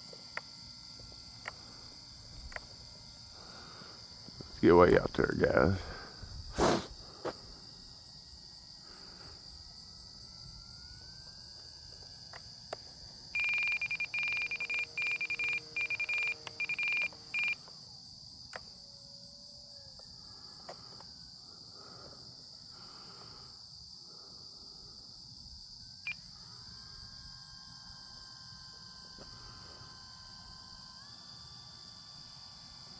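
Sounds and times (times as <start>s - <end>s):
crickets chirping: 0.0s - 32.9s
pulsing high-pitched tone: 13.4s - 17.6s.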